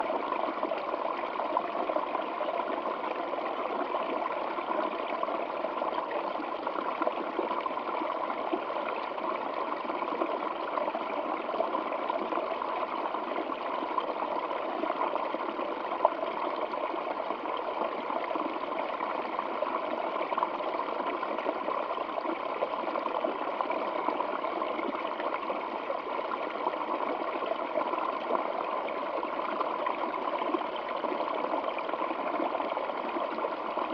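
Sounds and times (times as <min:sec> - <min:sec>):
water trickling and gurgling: 0:00.0 - 0:33.9.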